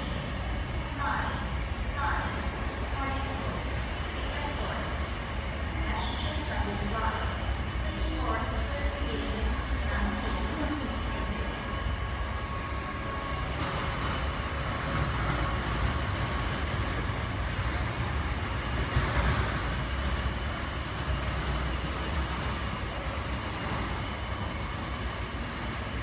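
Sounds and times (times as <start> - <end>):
airport apron rumble: 0.0 - 26.0.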